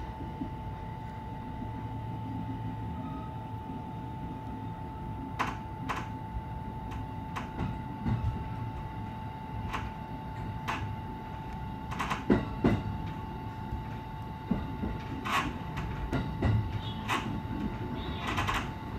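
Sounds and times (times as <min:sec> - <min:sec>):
train high hum: 0:00.0 - 0:18.9
sharp clicks and knocks: 0:05.4 - 0:06.2, 0:06.9 - 0:08.9, 0:09.7 - 0:13.2, 0:13.8 - 0:18.8.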